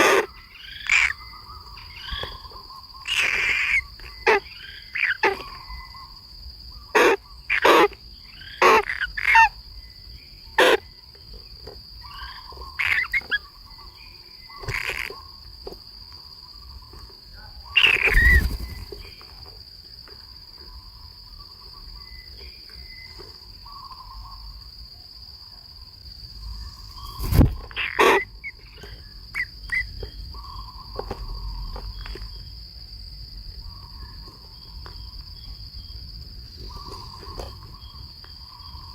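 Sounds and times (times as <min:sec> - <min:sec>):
sharp bird calls: 0:00.0 - 0:11.0, 0:12.0 - 0:15.4, 0:16.3 - 0:19.5, 0:20.6 - 0:24.6, 0:26.4 - 0:32.4
high insect buzz: 0:00.0 - 0:38.9.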